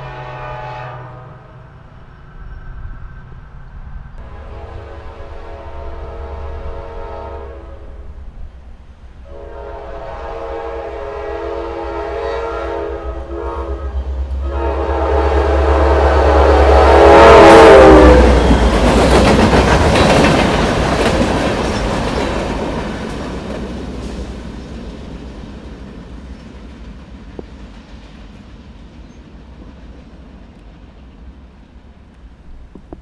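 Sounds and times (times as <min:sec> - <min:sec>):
train horn: 0:00.0 - 0:01.8, 0:04.2 - 0:08.3, 0:09.2 - 0:19.0
locomotive engine rumble: 0:01.2 - 0:33.0
freight cars clattering over rail joints: 0:18.4 - 0:27.9.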